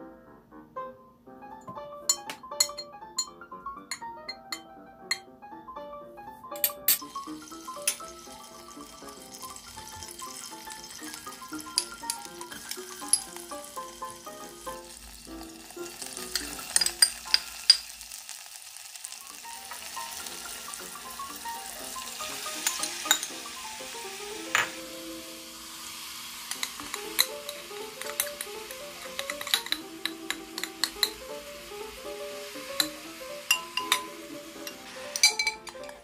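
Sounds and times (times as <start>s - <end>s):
background music: 0.0s - 17.8s, 19.1s - 36.0s
metal spoon clinking on pot: 2.1s - 5.2s, 6.6s - 9.5s, 10.2s - 13.5s, 15.9s - 18.0s, 22.6s - 23.3s, 26.5s - 31.2s, 32.8s - 36.0s
food sizzling in oil: 7.0s - 36.0s.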